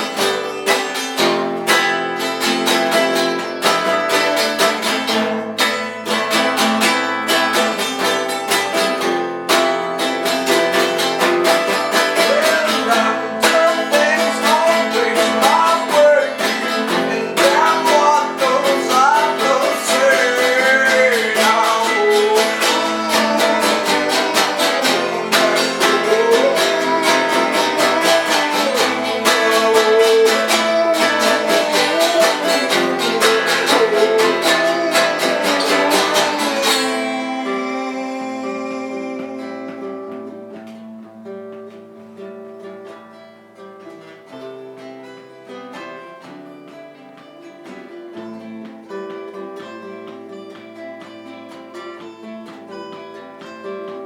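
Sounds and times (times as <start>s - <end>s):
person singing: 0.0s - 41.3s
strummed acoustic guitar: 0.0s - 54.0s.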